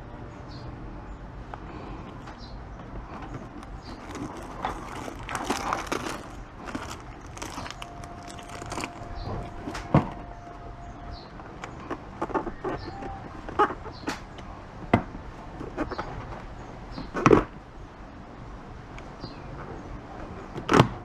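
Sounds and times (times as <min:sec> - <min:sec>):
packaging rustling and crinkling: 0:03.2 - 0:10.2.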